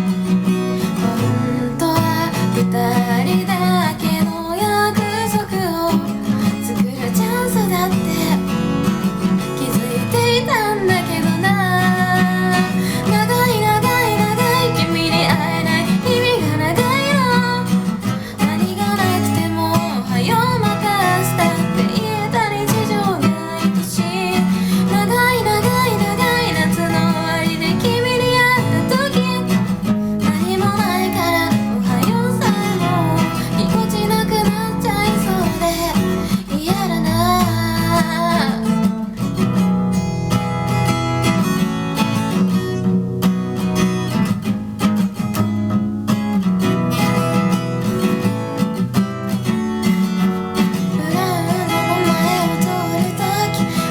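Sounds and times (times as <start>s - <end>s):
acoustic guitar strumming: 0.0s - 53.9s
person singing: 9.6s - 39.2s, 51.0s - 53.9s.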